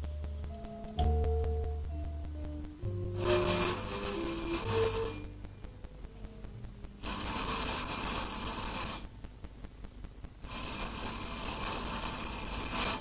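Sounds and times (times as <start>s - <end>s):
telephone ringing: 2.8s - 5.6s, 7.0s - 9.2s, 10.4s - 13.0s.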